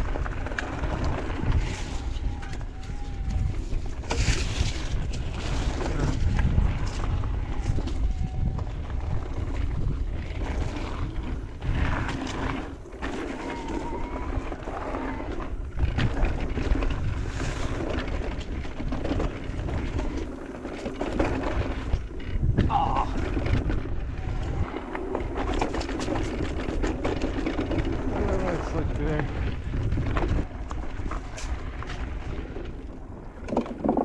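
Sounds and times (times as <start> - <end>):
bike rattling over bumps: 0.0 - 34.0
tyres rolling on dirt: 0.0 - 34.0
wind buffeting microphone: 0.0 - 34.0.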